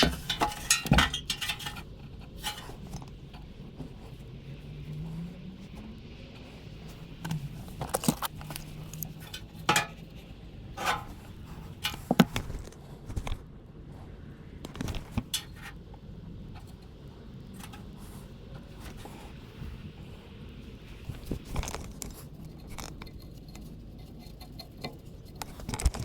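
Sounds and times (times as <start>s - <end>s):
metal tools clinking: 0.0s - 3.1s
low steady hum: 0.0s - 26.0s.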